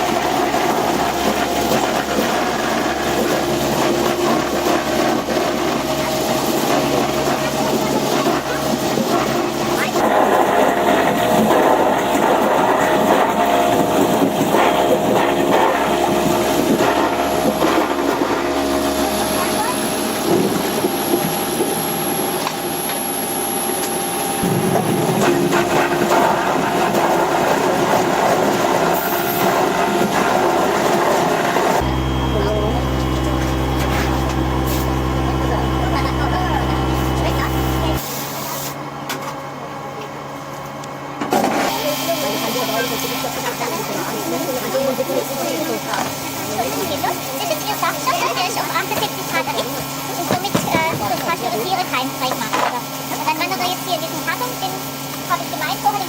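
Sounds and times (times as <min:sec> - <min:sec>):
steady hum: 0:00.0 - 0:38.0
machinery whirring: 0:00.0 - 0:56.0.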